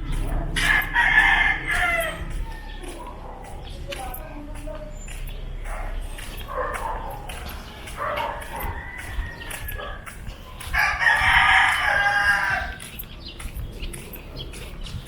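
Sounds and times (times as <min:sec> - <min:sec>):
rooster crowing: 0:00.6 - 0:02.6, 0:08.1 - 0:10.0, 0:10.8 - 0:12.8.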